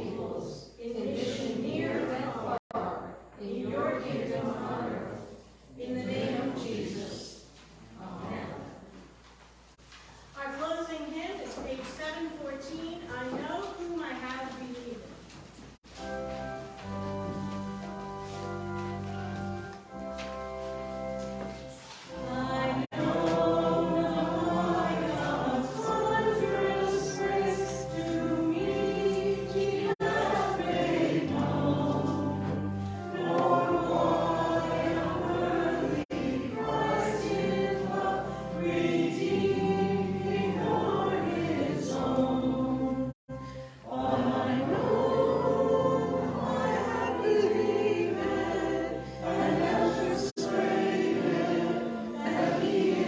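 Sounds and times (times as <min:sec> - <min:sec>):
choir singing a hymn: 0:00.0 - 0:08.9, 0:16.0 - 0:53.0
sustained low accompaniment: 0:15.9 - 0:41.5.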